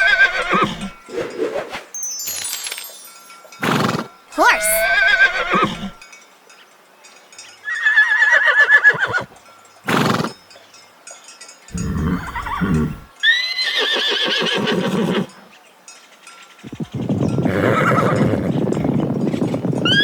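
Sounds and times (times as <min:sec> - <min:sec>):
horse neighing: 0:00.0 - 0:01.0, 0:03.6 - 0:06.0, 0:11.7 - 0:15.3, 0:17.5 - 0:18.5
horse snorting: 0:09.9 - 0:10.3, 0:11.7 - 0:13.1
horse nickering: 0:11.7 - 0:13.1.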